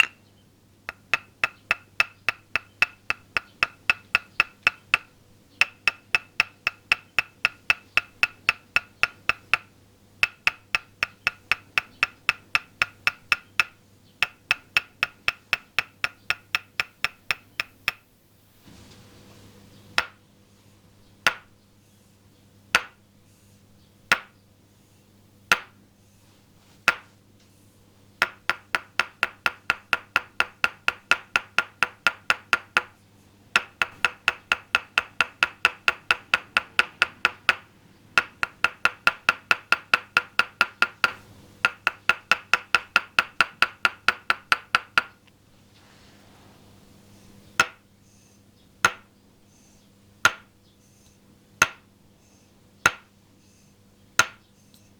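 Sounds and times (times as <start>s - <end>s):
wooden mallet knocking on peg: 0.0s - 0.2s, 0.9s - 18.0s, 20.0s - 20.2s, 21.2s - 21.5s, 22.7s - 23.0s, 24.1s - 24.3s, 25.5s - 25.8s, 26.9s - 27.1s, 28.2s - 45.2s, 47.6s - 47.8s, 48.8s - 49.1s, 50.2s - 50.5s, 51.6s - 51.8s, 52.9s - 53.1s, 54.2s - 54.4s.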